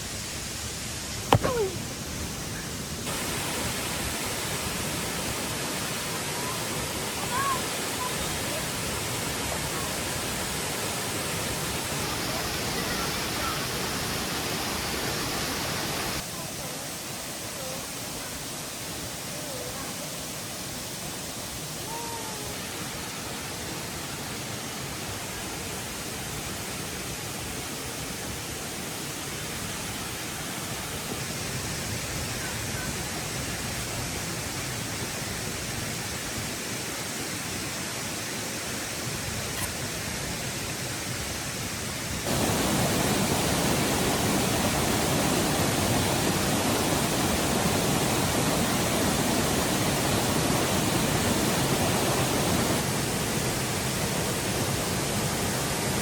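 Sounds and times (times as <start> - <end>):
steady rushing noise: 42.2 - 53.8.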